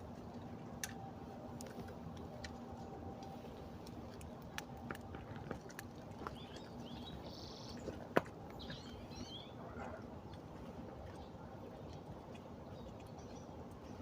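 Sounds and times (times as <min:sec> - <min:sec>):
small birds chirping: 0:05.7 - 0:14.0.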